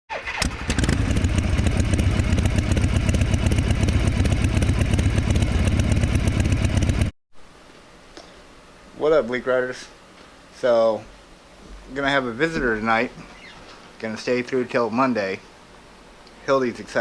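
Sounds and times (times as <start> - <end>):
motorcycle engine running: 0.5 - 7.1.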